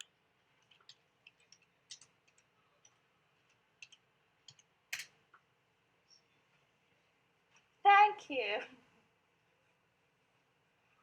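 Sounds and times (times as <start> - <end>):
computer keyboard typing clicks: 3.8 - 4.7.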